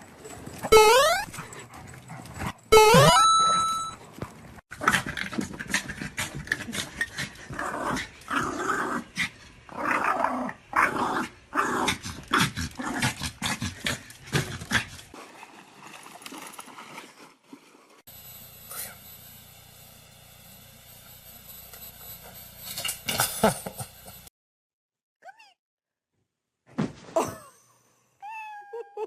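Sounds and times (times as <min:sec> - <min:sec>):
dog growling and snarling: 0:04.7 - 0:15.1.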